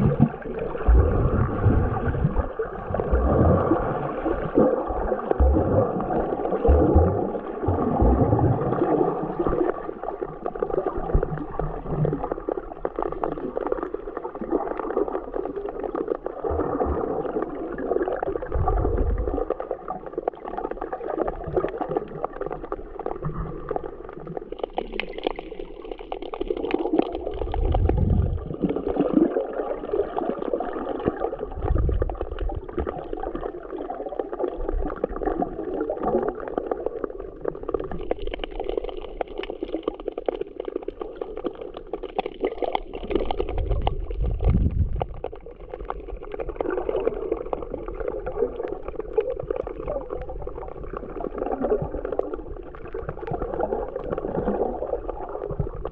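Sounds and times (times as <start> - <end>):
muffled underwater water sloshing: 0.0 - 55.9
low water surges: 27.5 - 33.8.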